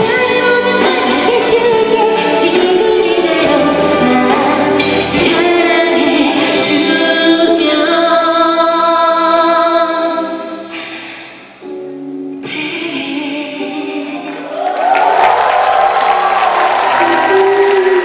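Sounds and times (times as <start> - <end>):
orchestra playing: 0.0 - 7.4
woman singing: 0.0 - 10.7, 12.4 - 14.6, 16.9 - 18.0.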